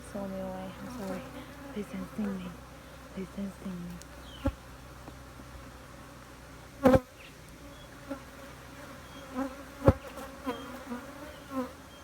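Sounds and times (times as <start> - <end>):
bee droning close past: 0.0 - 4.8, 6.8 - 12.0
honeybees buzzing: 0.0 - 12.0.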